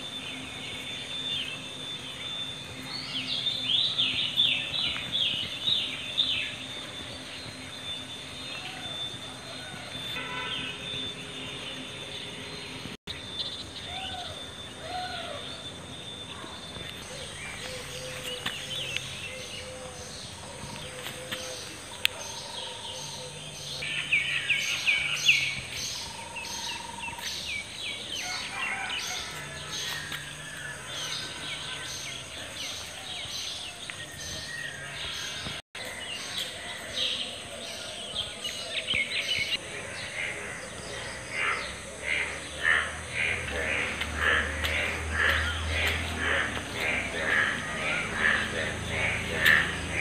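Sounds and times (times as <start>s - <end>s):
birds chirping: 0.0s - 50.0s
outdoor background noise: 0.0s - 50.0s.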